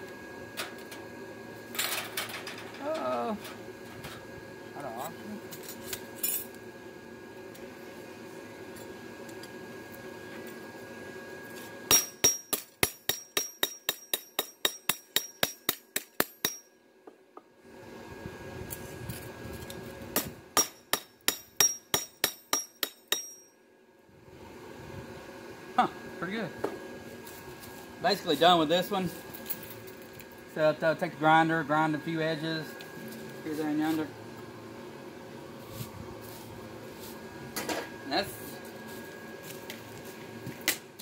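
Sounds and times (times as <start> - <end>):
hammer striking steel: 11.9 - 16.7, 20.2 - 23.6.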